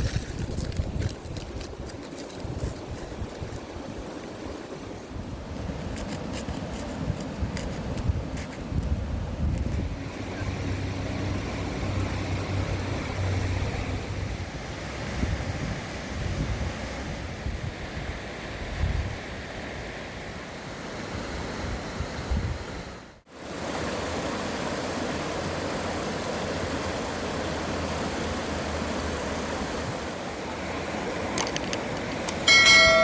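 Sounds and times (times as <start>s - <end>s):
bright ringing chime: 32.5s - 33.0s.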